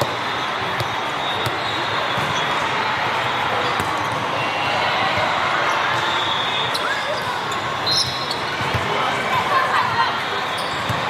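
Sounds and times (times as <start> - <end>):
crowd hubbub in hall: 0.0 - 11.0
volleyballs smacking: 3.7 - 4.4.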